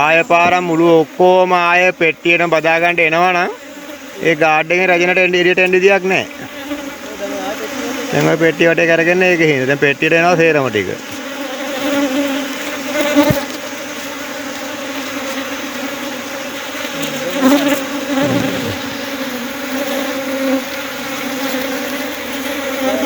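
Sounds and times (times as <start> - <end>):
swarm of bees buzzing: 0.5 - 23.0
single bee buzzing close: 3.5 - 4.2, 6.3 - 8.5, 11.0 - 23.0.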